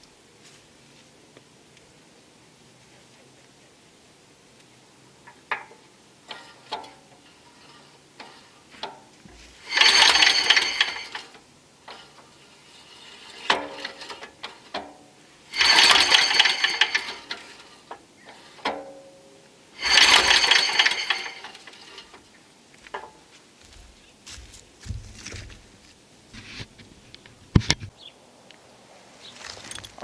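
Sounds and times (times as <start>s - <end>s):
engine cranking clatter: 9.6s - 12.2s, 15.5s - 18.6s, 19.8s - 22.2s.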